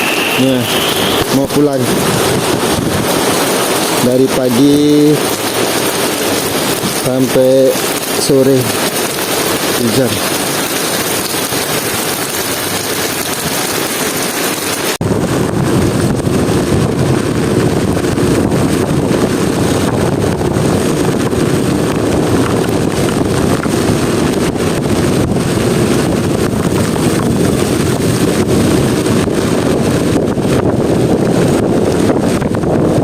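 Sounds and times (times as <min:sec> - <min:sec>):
rain hiss: 0:00.0 - 0:15.0
wind buffeting microphone: 0:00.0 - 0:33.0.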